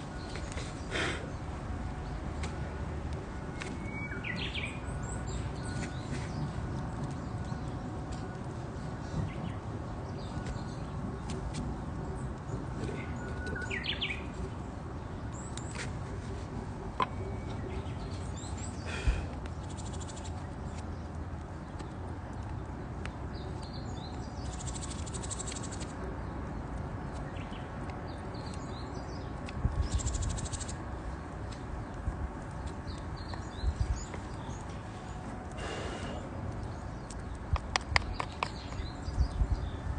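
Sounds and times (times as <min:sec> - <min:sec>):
small birds chirping: 0:00.0 - 0:39.9
wood fire crackling and popping: 0:36.5 - 0:38.7.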